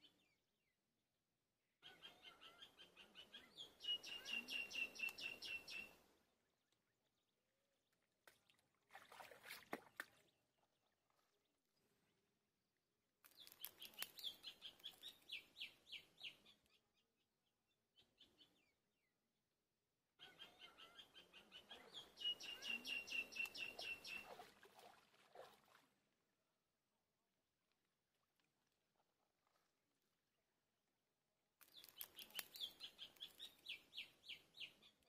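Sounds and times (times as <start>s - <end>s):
bird calling high repeated notes: 1.9s - 6.0s, 20.4s - 24.4s.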